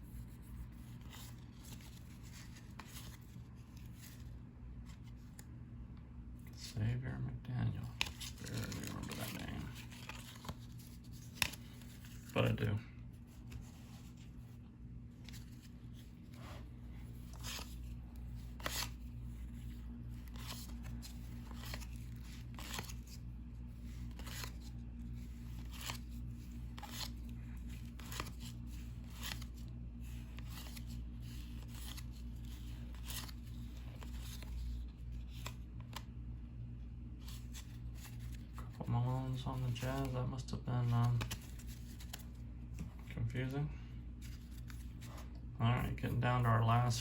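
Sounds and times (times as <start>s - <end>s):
steady low hum: 0.0s - 47.0s
cards snapping as flipped: 7.9s - 12.3s.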